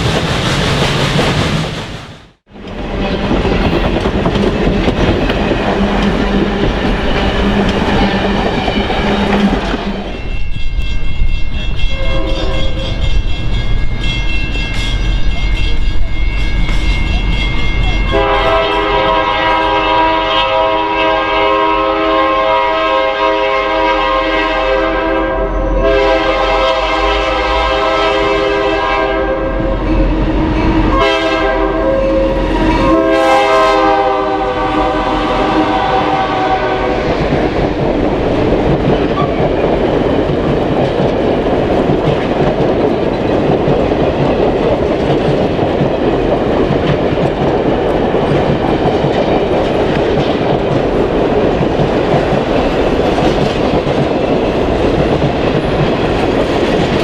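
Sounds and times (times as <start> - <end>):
wheels clacking over rail joints: 2.6 - 19.7, 35.6 - 57.0
train horn blasts: 5.4 - 13.6, 15.2 - 37.3.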